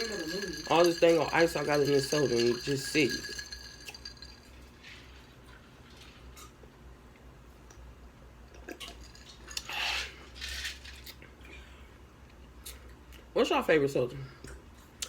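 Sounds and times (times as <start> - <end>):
ice clinking in a glass: 0.0 - 5.2, 8.8 - 9.8.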